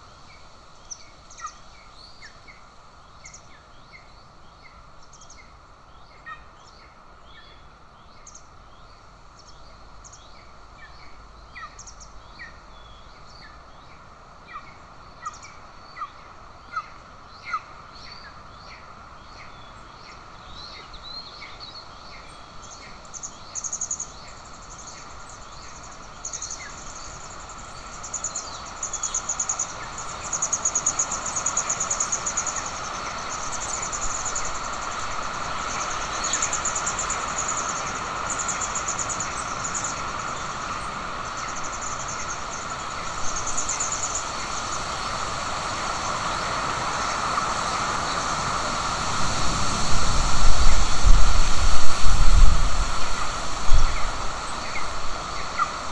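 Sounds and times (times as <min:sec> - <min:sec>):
outdoor hiss: 0:00.0 - 0:55.9
birds chirping: 0:14.5 - 0:48.4, 0:50.6 - 0:55.9.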